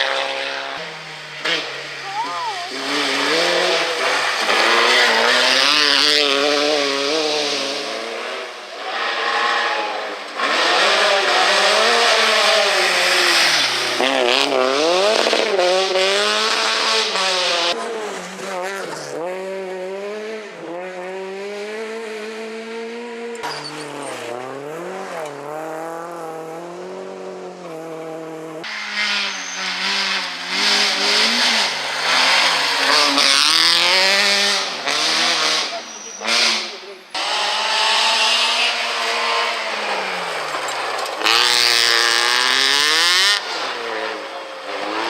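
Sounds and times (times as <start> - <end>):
rally car engines revving: 0.0 - 45.0
tyre squeal: 23.3 - 24.3, 29.1 - 33.3, 35.2 - 36.8.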